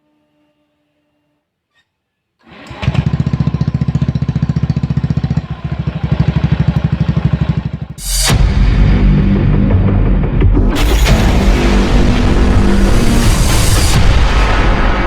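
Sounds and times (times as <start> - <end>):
motorbike exhaust popping: 3.7 - 8.0.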